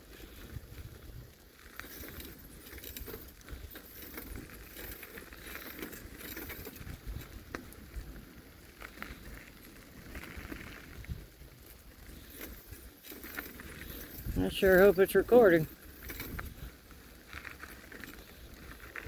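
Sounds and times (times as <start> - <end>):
bicycle rumble: 0.0 - 19.0
light clicks and rattles: 1.6 - 19.0.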